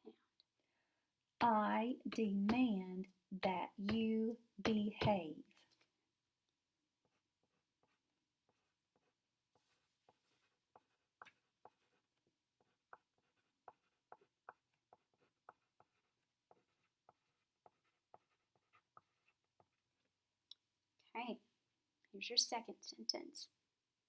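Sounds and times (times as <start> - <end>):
pencil writing on paper: 2.1 - 2.7, 3.4 - 5.7, 7.0 - 20.1.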